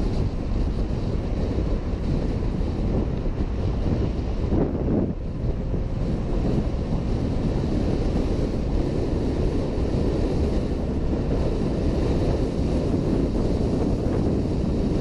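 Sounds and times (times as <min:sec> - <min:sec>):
road and traffic noise: 0:00.0 - 0:15.0
wind rushing over microphone: 0:00.0 - 0:15.0.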